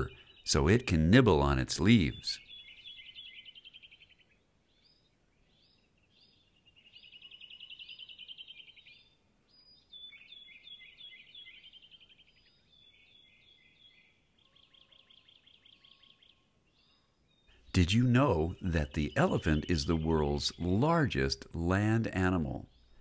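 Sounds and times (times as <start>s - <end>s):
small birds trilling: 0.0s - 23.0s
down-slurred bird notes: 17.8s - 23.0s.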